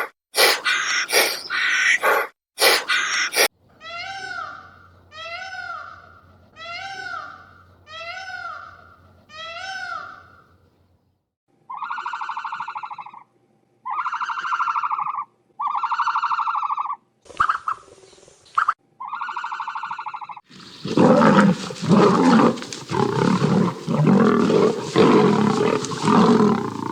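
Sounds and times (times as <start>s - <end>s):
buzzy pulsing animal calls: 0.0s - 3.5s, 19.0s - 26.9s
animal cries rising and falling: 6.6s - 10.3s, 20.6s - 26.9s.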